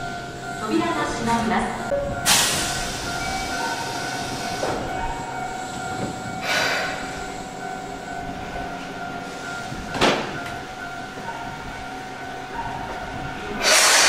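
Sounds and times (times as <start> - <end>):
electric train whine: 0.0 - 14.0
short hissing bursts: 13.6 - 14.0.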